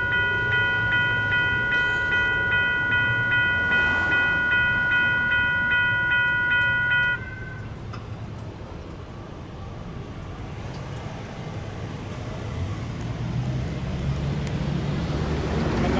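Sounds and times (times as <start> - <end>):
electronic crossing bell ringing: 0.0 - 7.8
rail and road traffic rumble: 0.0 - 15.9.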